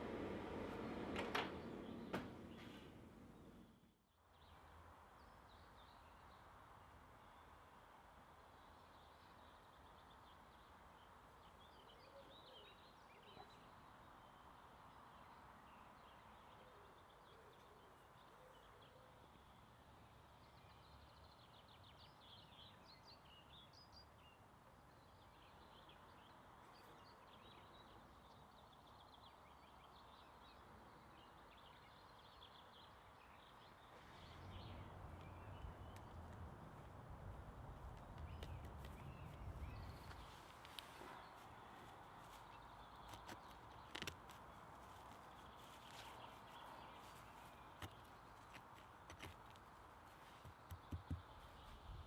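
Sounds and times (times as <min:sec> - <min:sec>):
small birds chirping: 0:00.0 - 0:07.7, 0:08.4 - 0:52.0.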